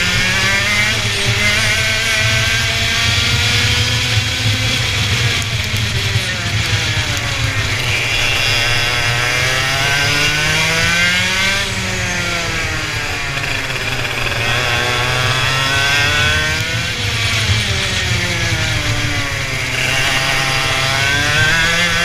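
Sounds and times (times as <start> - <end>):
race car engines revving: 0.0 - 22.0
low engine drone: 3.7 - 22.0.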